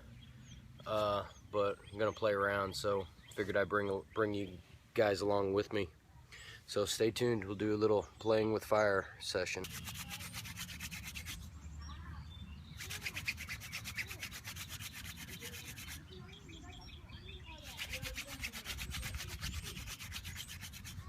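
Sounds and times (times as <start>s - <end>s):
wooden spindle scraping: 9.6s - 11.5s, 12.8s - 16.1s, 17.6s - 21.0s.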